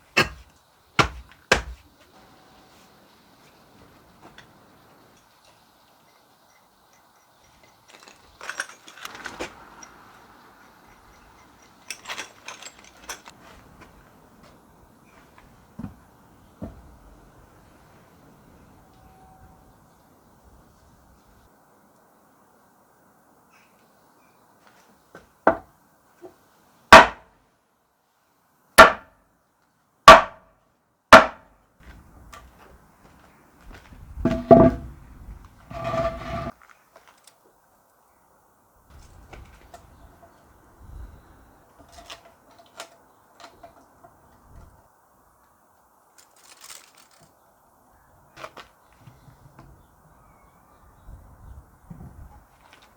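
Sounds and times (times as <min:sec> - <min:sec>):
small metallic clicking and clattering: 0:05.1 - 0:13.4, 0:41.7 - 0:44.4, 0:46.1 - 0:47.4.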